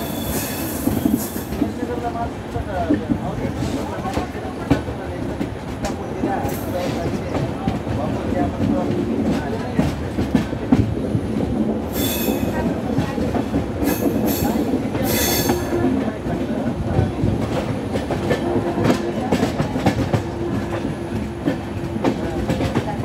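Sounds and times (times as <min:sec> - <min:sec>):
train rumble: 0:00.0 - 0:23.0.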